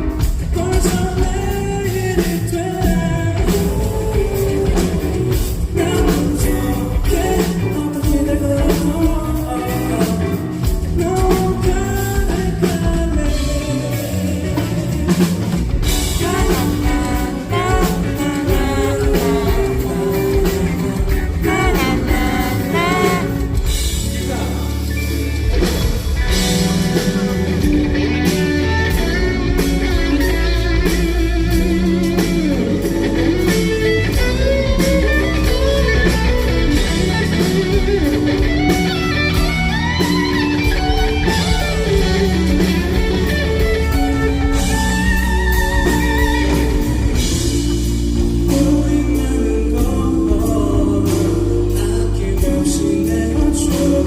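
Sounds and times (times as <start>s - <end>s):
bass guitar: 0.0s - 54.0s
drums: 0.0s - 54.0s
lead guitar bending notes: 14.4s - 50.4s.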